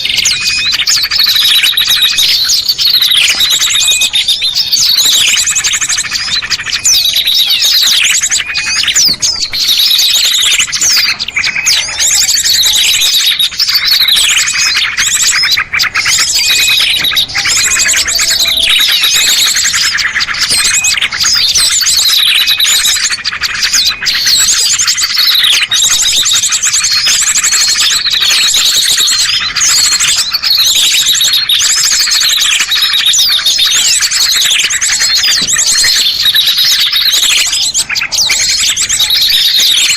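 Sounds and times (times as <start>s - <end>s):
downward-sweeping bird calls: 0.0s - 39.9s
high bird trills: 0.0s - 39.9s
songbirds chirping: 0.0s - 39.9s.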